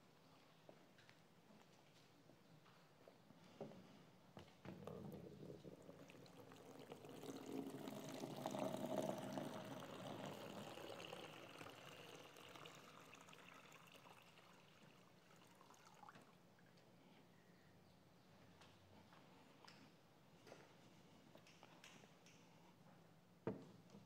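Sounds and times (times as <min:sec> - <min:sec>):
water pouring into a font: 0:05.1 - 0:16.4.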